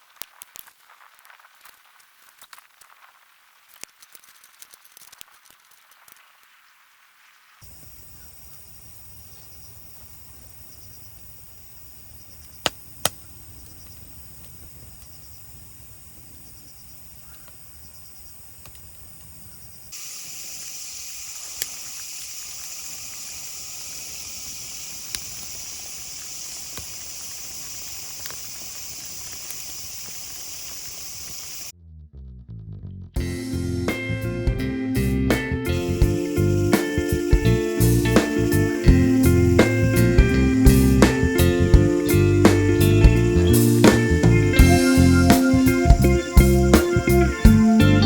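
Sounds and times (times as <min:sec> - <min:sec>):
insects droning: 0:07.6 - 0:31.7, 0:35.4 - 0:48.0
low rumble: 0:31.8 - 0:48.0.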